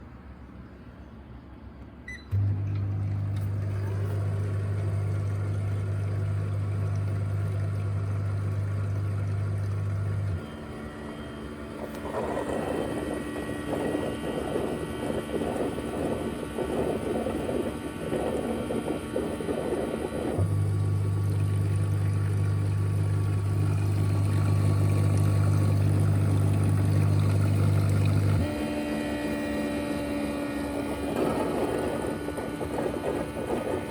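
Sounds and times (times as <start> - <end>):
vacuum motor humming and whooshing: 2.3 - 33.9.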